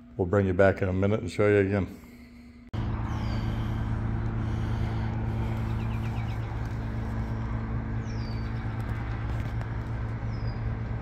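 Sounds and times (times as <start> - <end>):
vehicle engine idling: 2.7 - 11.0.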